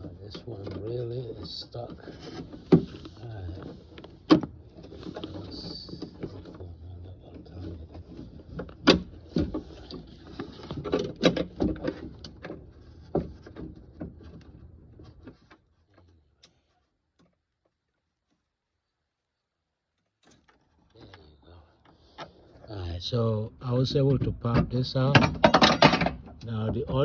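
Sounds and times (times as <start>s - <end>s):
car door parts clicking and knocking: 4.2s - 4.7s, 8.5s - 10.1s, 24.1s - 27.0s.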